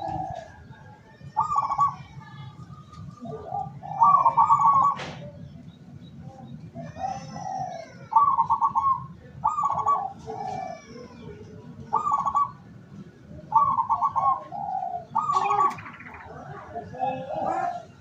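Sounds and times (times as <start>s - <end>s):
dove cooing: 0.0s - 2.2s, 2.8s - 5.5s, 6.7s - 18.0s.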